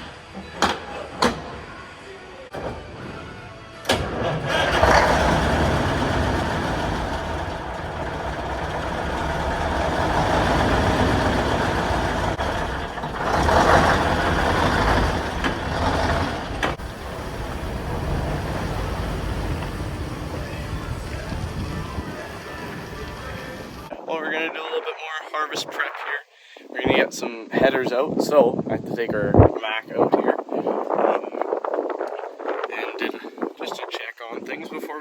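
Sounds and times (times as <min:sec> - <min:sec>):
truck engine running: 0:01.0 - 0:23.9.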